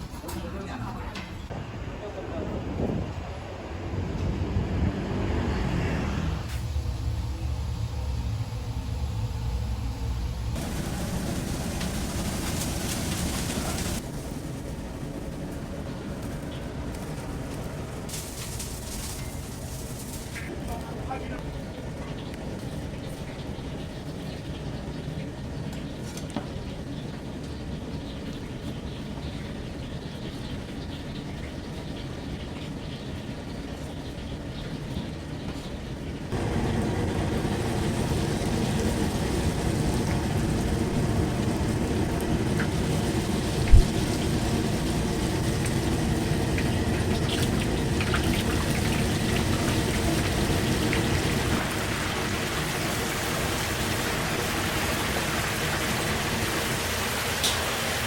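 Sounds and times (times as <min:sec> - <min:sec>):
food sizzling in hot oil: 0:36.4 - 0:57.8.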